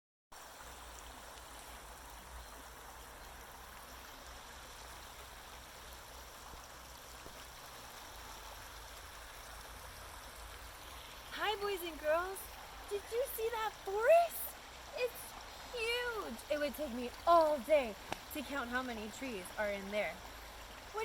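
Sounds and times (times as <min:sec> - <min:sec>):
stream water rushing: 0:00.4 - 0:21.0.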